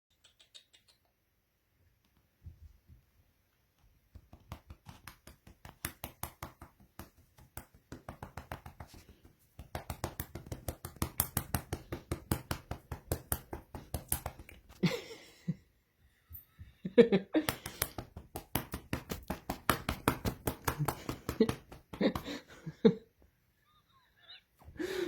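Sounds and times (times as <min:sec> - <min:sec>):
hand patting a cat: 0:04.1 - 0:14.8, 0:17.4 - 0:22.5.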